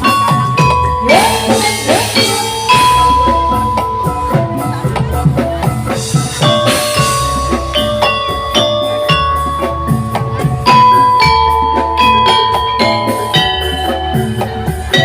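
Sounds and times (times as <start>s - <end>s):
drums: 0.0s - 15.0s
metallophones ringing: 0.0s - 15.0s.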